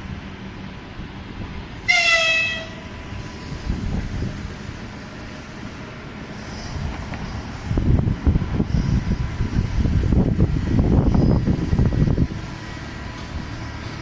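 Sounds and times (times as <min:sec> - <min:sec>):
train rumbling on tracks: 0:00.0 - 0:14.0
train horn toot: 0:01.8 - 0:02.9.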